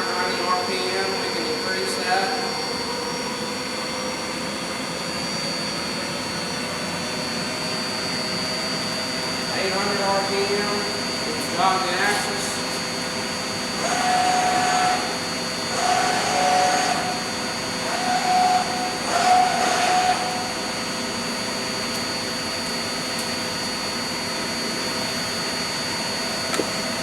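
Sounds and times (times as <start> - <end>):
lathe spindle high tone: 7.8 - 21.6
servo motor whines: 13.5 - 20.7.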